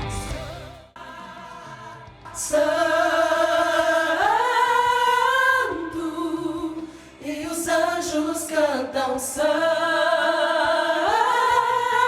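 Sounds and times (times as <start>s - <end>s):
soprano voices singing held note: 0.0s - 12.0s.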